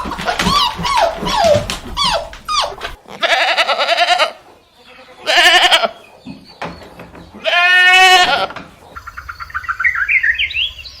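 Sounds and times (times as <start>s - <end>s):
animal bleating: 3.1s - 6.0s, 7.4s - 8.6s.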